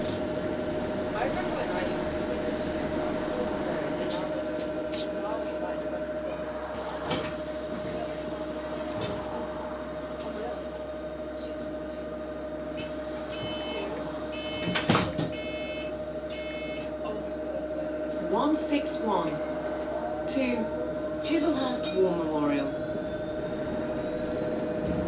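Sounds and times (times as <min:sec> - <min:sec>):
short electronic beeps: 0:13.4 - 0:14.7, 0:15.3 - 0:16.9.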